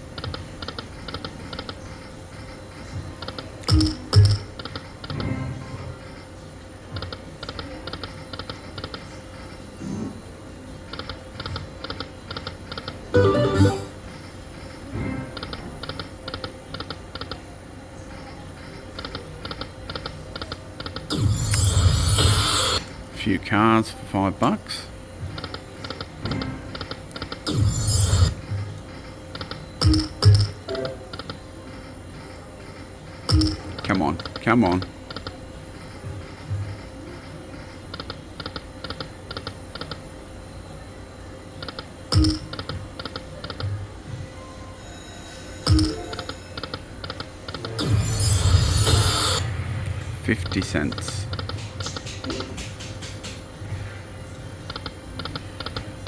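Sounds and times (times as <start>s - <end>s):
poker machine electronic beeps: 3.7s - 4.4s, 13.1s - 14.1s, 29.8s - 31.4s, 33.3s - 34.8s, 42.1s - 42.7s, 45.6s - 46.9s, 47.8s - 49.6s.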